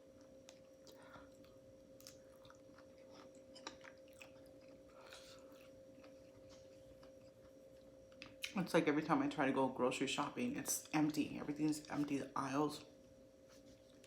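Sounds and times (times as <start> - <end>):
faint steady hum: 0.0 - 14.0
wet chewing mouth sounds: 0.4 - 7.5.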